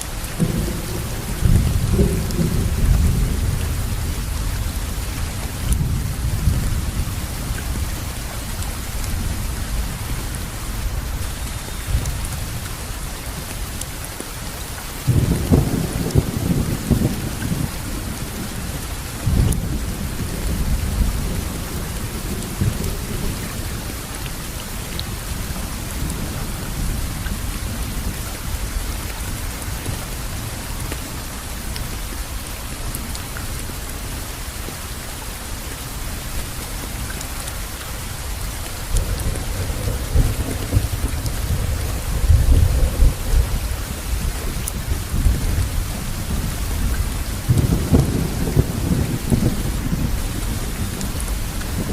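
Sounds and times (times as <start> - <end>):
steady rain falling: 0.0 - 51.9
thunder rumbling: 0.1 - 13.8, 15.0 - 28.8, 38.2 - 51.9.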